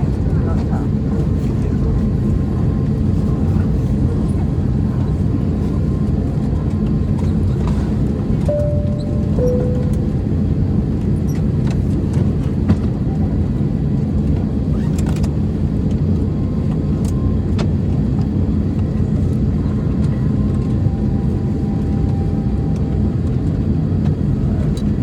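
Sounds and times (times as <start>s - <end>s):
aircraft cabin rumble: 0.0s - 25.0s
cabin chime: 8.5s - 10.5s.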